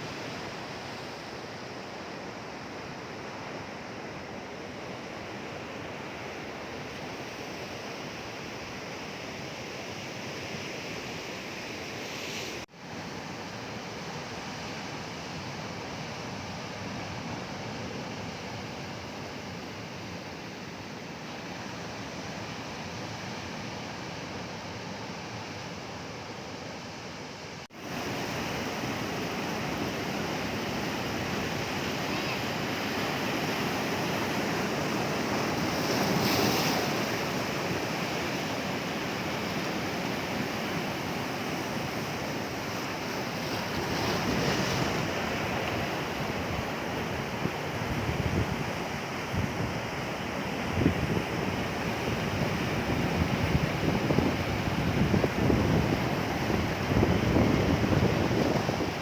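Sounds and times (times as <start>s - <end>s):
sea waves breaking on shore: 27.6s - 59.0s
wind buffeting microphone: 50.7s - 59.0s.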